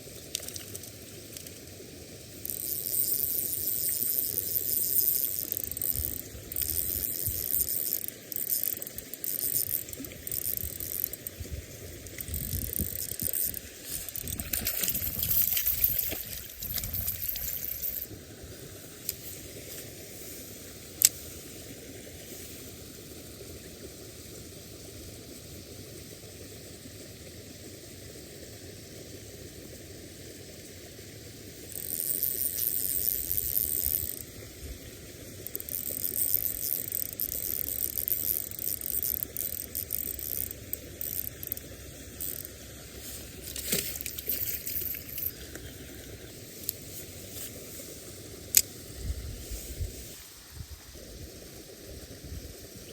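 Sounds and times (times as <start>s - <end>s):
fish splashing at water surface: 12.0s - 18.0s.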